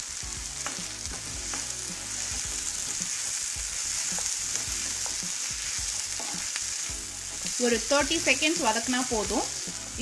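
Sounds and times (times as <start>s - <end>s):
vegetables sizzling in oil: 0.0s - 10.0s
wooden spatula tapping and scraping: 0.6s - 6.8s.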